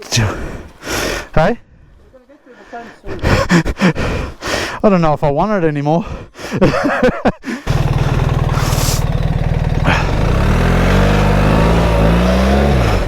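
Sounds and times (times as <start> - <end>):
motorcycle engine revving: 7.7 - 13.0.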